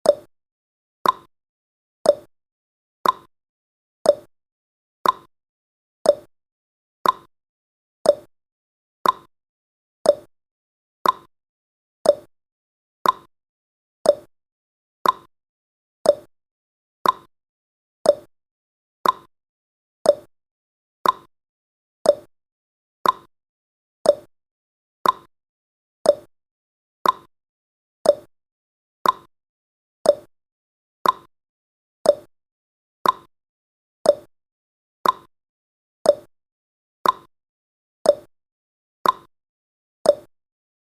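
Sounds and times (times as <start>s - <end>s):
timer ticking: 0.0s - 0.3s, 1.0s - 1.3s, 2.0s - 2.3s, 3.0s - 3.3s, 4.0s - 4.3s, 5.0s - 5.3s, 6.0s - 6.3s, 7.0s - 7.3s, 8.0s - 8.3s, 9.0s - 9.3s, 10.0s - 10.3s, 11.0s - 11.3s, 12.0s - 12.3s, 13.0s - 13.3s, 14.0s - 14.3s, 15.0s - 15.3s, 16.0s - 16.3s, 17.0s - 17.3s, 18.0s - 18.3s, 19.0s - 19.3s, 20.0s - 20.3s, 21.0s - 21.3s, 22.0s - 22.3s, 23.0s - 23.3s, 24.0s - 24.3s, 25.0s - 25.3s, 26.0s - 26.3s, 27.0s - 27.3s, 28.0s - 28.3s, 29.0s - 29.3s, 30.0s - 30.3s, 31.0s - 31.3s, 32.0s - 32.3s, 33.0s - 33.3s, 34.0s - 34.3s, 35.0s - 35.3s, 36.0s - 36.3s, 37.0s - 37.3s, 38.1s - 38.3s, 39.0s - 39.3s, 40.1s - 40.3s.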